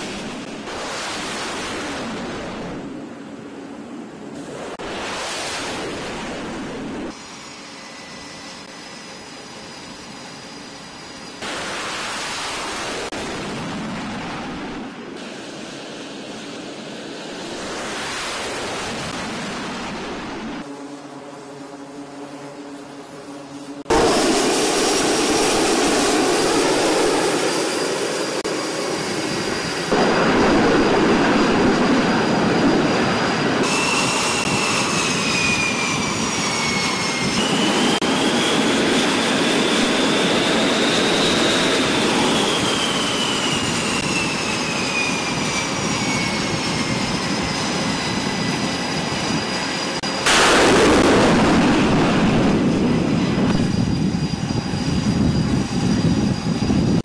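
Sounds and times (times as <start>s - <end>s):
high turbine whine: 0.0s - 57.0s
jet engine roar: 0.0s - 57.0s.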